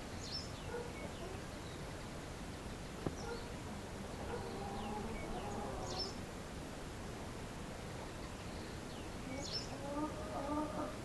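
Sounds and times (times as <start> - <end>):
steady background hiss: 0.0 - 11.0
small birds chirping: 0.1 - 6.3, 7.9 - 10.5.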